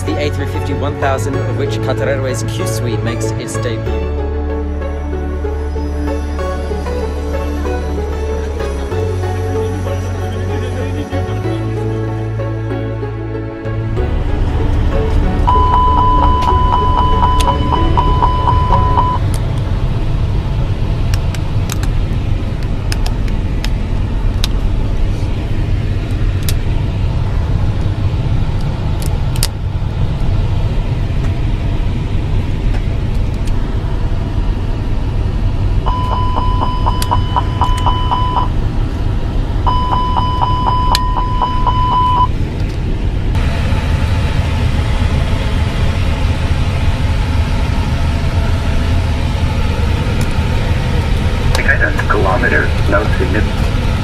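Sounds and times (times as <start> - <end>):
airliner low rumble: 0.0 - 54.0
rapid high beeping: 15.4 - 19.2, 35.9 - 38.5, 39.7 - 42.3.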